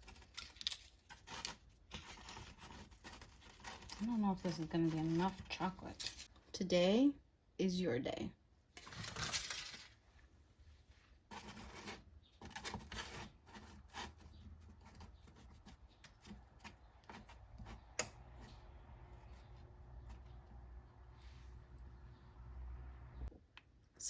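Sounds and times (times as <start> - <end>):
wrapper rustling: 0.0 - 6.3, 8.8 - 10.2.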